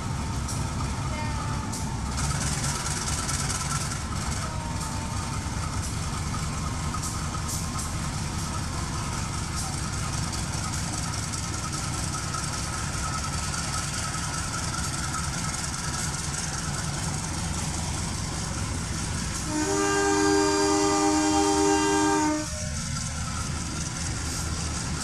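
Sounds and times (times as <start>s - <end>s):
train rumbling: 0.0s - 25.0s
locomotive horn: 19.4s - 22.8s.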